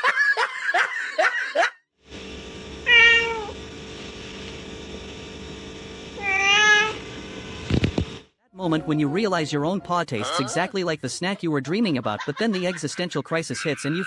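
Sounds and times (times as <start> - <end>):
room noise: 2.1 - 9.3
cat meowing: 2.9 - 3.6, 6.2 - 7.0.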